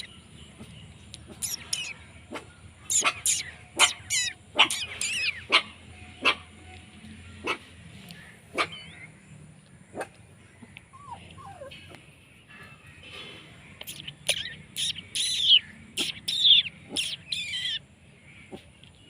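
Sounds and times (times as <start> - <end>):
puppies whimpering and yipping: 2.9 - 6.4, 10.8 - 12.0, 14.3 - 17.8.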